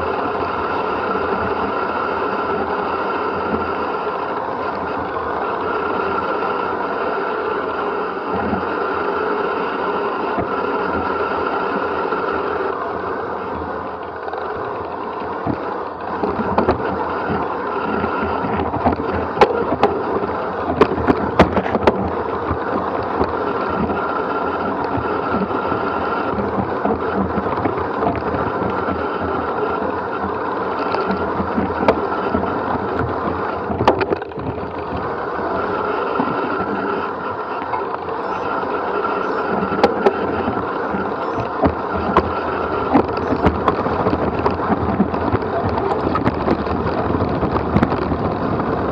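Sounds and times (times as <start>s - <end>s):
wind rushing over microphone: 13.5s - 48.9s
bike rattles and knocks: 13.6s - 48.9s
tyres crunching over dirt and stones: 14.4s - 48.9s.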